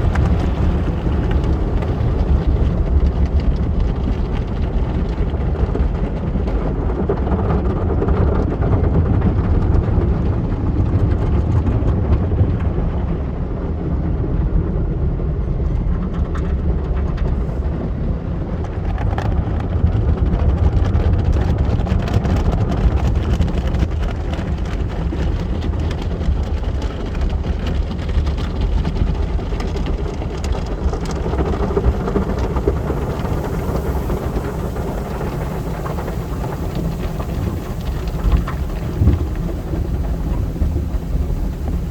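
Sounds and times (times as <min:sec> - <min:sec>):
car wash machinery rumbling: 0:00.0 - 0:13.4, 0:17.2 - 0:41.9
water spraying: 0:28.6 - 0:41.9.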